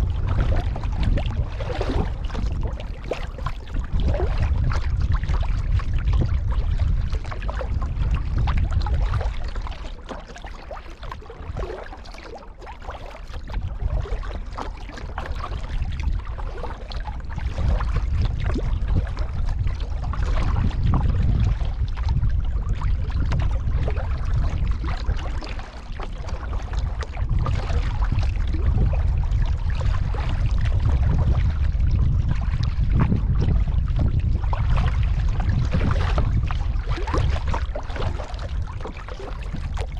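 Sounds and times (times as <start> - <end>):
heavy low rumble: 0.0 - 3.0
paddle splashes: 0.0 - 39.9
water sloshing against hull: 0.0 - 39.9.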